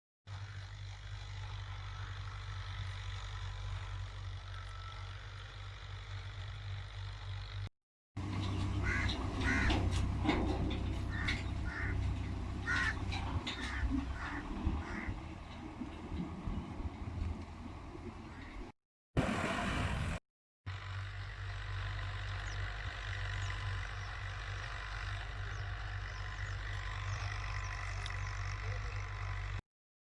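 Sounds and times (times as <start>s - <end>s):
tractor diesel engine running: 0.3s - 29.6s.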